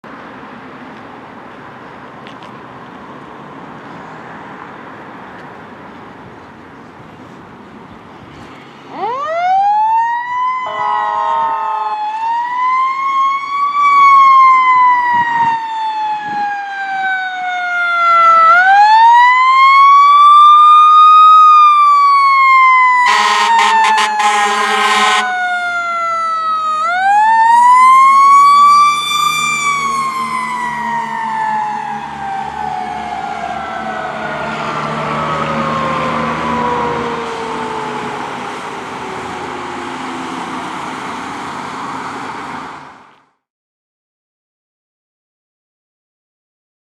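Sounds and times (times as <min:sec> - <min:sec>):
fire engine siren wailing: 0:08.9 - 0:43.1
fire engine horn blasts: 0:10.6 - 0:12.2, 0:23.0 - 0:25.5.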